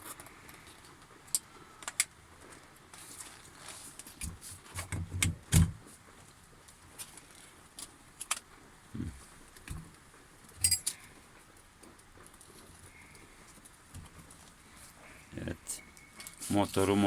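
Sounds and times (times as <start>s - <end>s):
metal tools knocking and clicking: 10.6s - 11.0s
metallic jingle: 10.6s - 11.0s.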